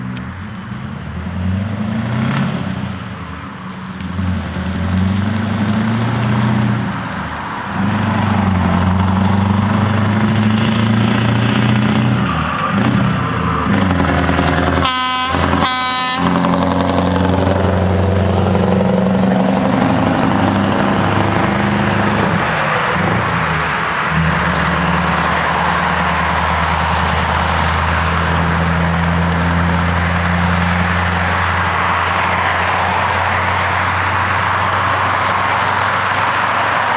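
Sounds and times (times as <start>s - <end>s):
diesel truck engine running: 0.0s - 36.9s
air horn blasts: 13.6s - 19.0s.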